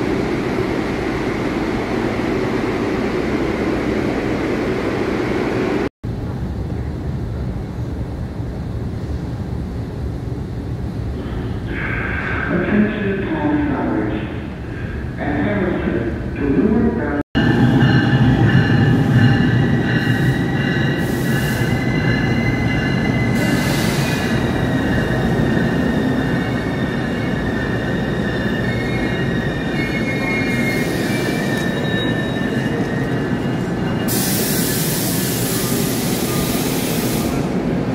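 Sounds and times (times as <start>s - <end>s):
electric train rumbling: 0.0s - 37.9s
wheels squealing: 20.2s - 36.4s.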